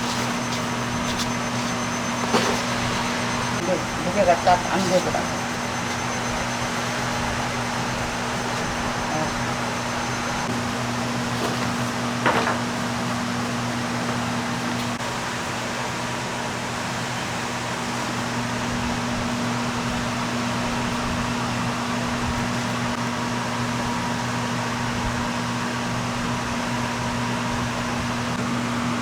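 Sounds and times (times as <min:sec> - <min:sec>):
constant low hum: 0:00.0 - 0:13.6
electric fan whooshing: 0:00.0 - 0:29.0.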